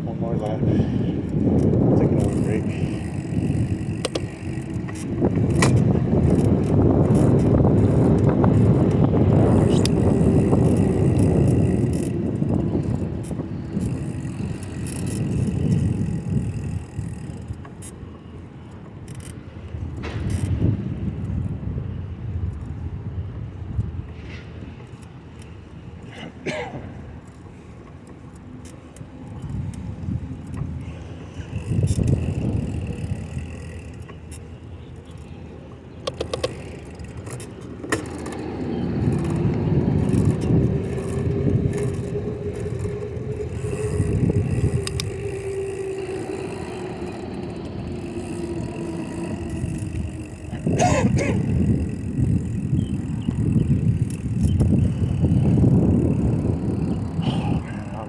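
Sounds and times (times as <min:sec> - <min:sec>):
slow-moving car hum: 0:00.0 - 0:58.0
wind rumbling on microphone: 0:00.0 - 0:58.0
sharp clicks: 0:36.0 - 0:50.6.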